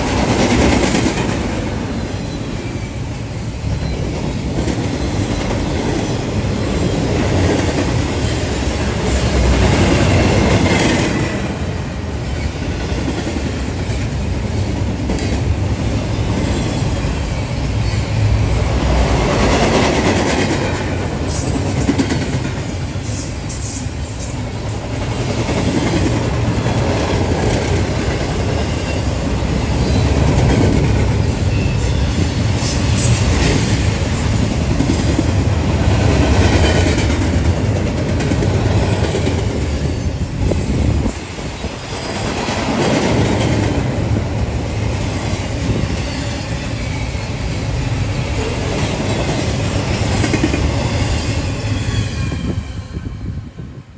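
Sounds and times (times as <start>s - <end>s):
freight train wheels rumbling: 0.0s - 53.9s.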